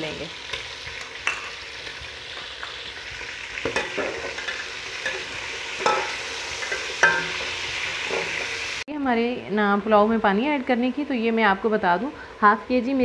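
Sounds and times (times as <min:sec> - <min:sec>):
chicken sizzling in hot oil: 0:00.0 - 0:08.9
spoon scraping and knocking pot: 0:03.6 - 0:08.6.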